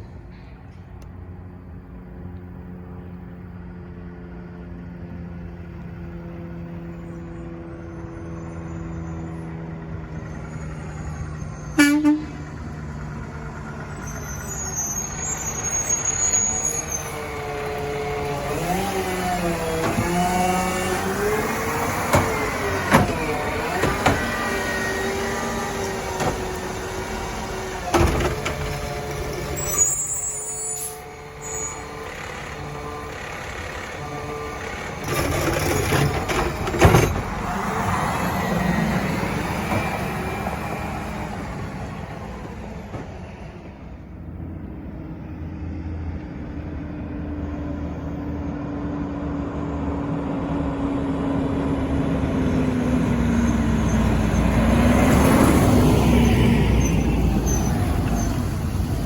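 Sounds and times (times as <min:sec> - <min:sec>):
diesel truck engines running: 0:00.0 - 0:59.0
air brake hisses: 0:29.6 - 0:31.8.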